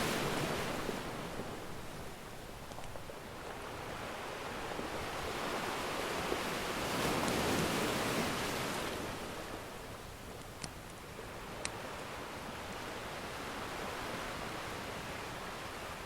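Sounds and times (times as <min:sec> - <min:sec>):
ocean wave surging: 0:00.0 - 0:02.0.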